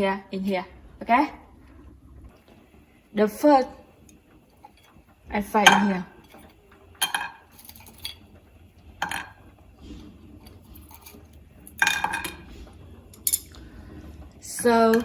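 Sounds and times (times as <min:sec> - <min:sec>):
utensil clinking against pot: 0:05.6 - 0:08.3.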